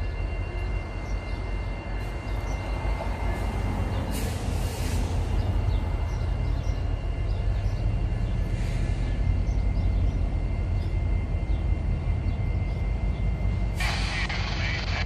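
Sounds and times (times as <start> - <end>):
diesel locomotives rumbling: 0.0 - 15.0
high-pitched whine: 0.0 - 15.0
birds chirping: 5.2 - 14.3.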